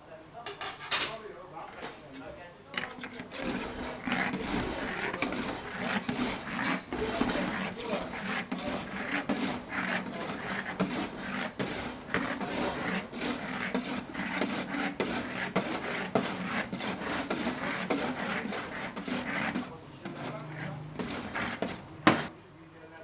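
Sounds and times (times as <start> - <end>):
rapid rubbing and scraping: 1.0 - 22.3.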